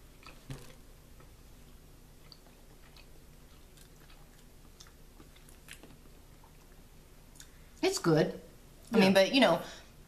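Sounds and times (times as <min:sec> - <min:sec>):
faint chewing: 0:00.0 - 0:07.6
low room hum: 0:00.0 - 0:10.0.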